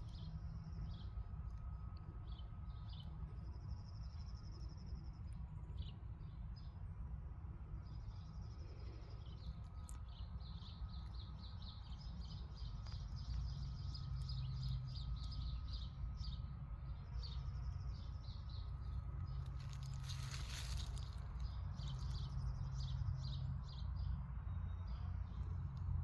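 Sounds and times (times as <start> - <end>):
low steady rumble: 0.0 - 26.0
small birds chirping: 7.8 - 16.4, 17.2 - 24.0.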